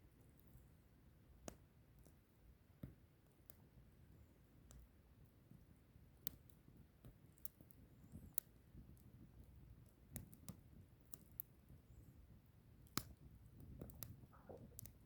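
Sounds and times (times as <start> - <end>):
low rumble of fire: 0.1 - 15.0
fire popping: 12.8 - 15.0
firewood crackling: 12.8 - 15.0.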